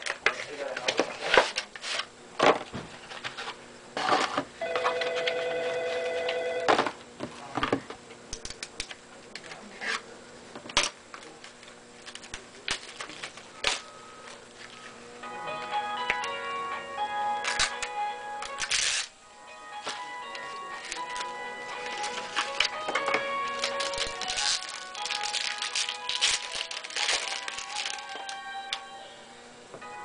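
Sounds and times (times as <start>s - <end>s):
electronic ringing tone: 4.6s - 6.8s
music with stepping notes: 14.1s - 30.0s
card wrapper crinkling: 18.4s - 19.2s, 19.8s - 28.4s.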